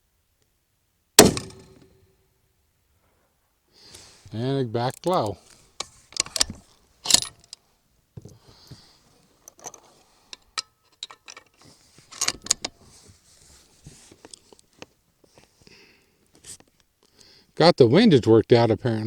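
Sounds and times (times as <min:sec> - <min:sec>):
rifle bolt clicks and rattles: 0:04.8 - 0:07.6, 0:09.4 - 0:12.8.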